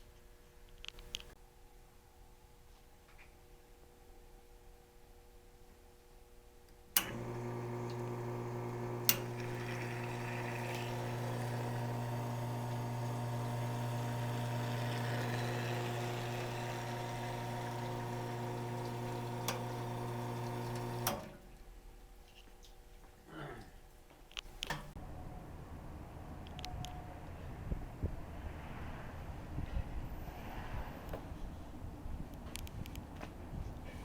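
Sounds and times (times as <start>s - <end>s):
pump switch click: 7.0s - 21.3s
espresso machine pump humming: 7.0s - 21.4s.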